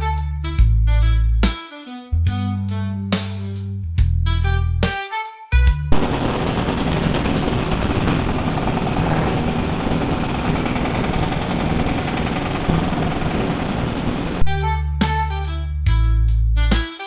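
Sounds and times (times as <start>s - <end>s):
broad rumble: 5.9s - 14.5s
heavy engine running: 5.9s - 14.5s.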